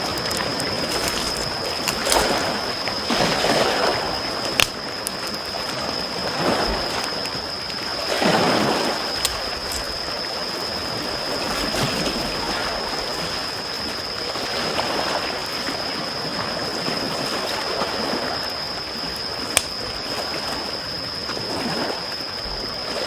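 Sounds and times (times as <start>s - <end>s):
campfire crackling and popping: 0.0s - 2.7s, 4.3s - 5.6s, 9.0s - 10.1s, 19.5s - 19.9s.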